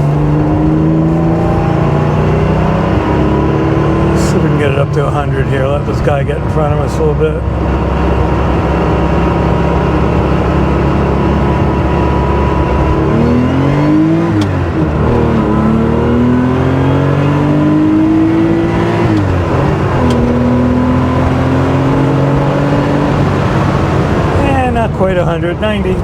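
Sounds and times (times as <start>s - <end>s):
car engine accelerating hard: 0.0s - 26.0s.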